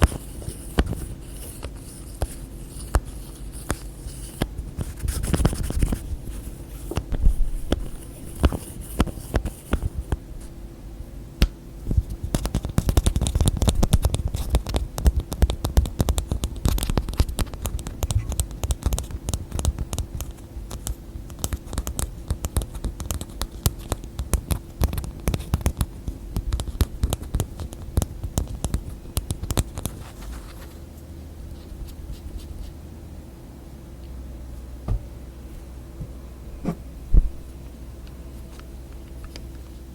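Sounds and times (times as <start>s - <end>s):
hands tapping and scratching objects: 0.0s - 10.2s, 11.4s - 30.8s
faint steady hum: 0.0s - 39.9s.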